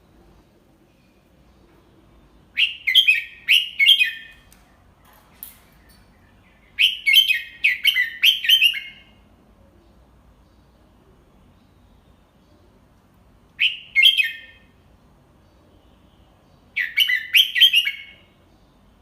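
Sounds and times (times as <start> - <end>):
bird singing clear notes: 1.5 - 10.7, 15.4 - 18.9.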